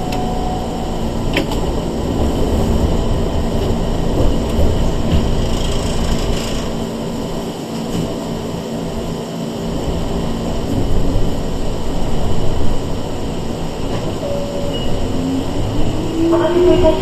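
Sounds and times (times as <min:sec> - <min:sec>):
electric train interior rumble: 0:00.0 - 0:17.0
low hum: 0:10.2 - 0:17.0.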